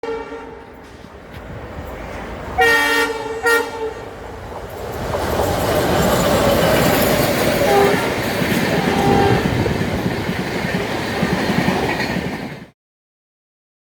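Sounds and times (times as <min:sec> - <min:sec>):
locomotive horn blasts: 0:00.0 - 0:00.8, 0:02.6 - 0:04.2, 0:07.6 - 0:09.7
train running noise: 0:00.0 - 0:12.8.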